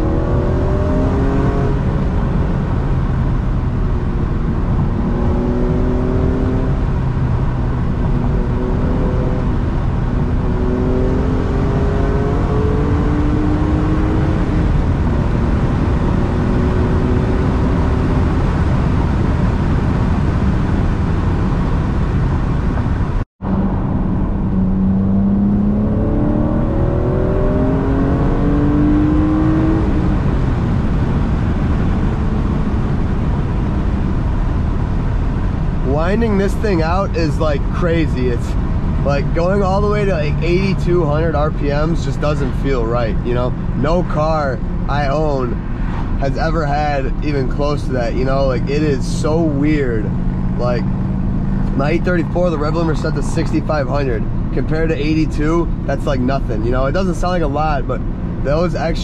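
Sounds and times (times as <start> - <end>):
car engine accelerating through gears: 0.0 - 59.0.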